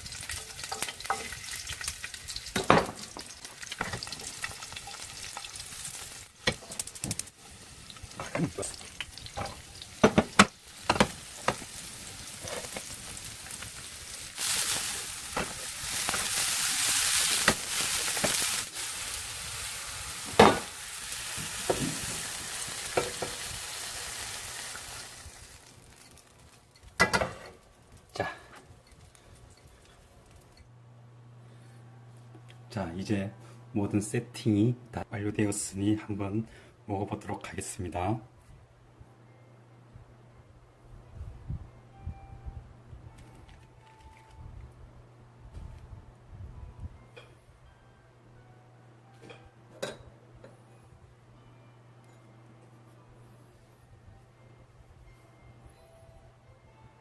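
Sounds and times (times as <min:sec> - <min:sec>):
cooking utensils clicking and scraping: 0:00.0 - 0:18.7
mushrooms sizzling on a grill: 0:00.0 - 0:30.4.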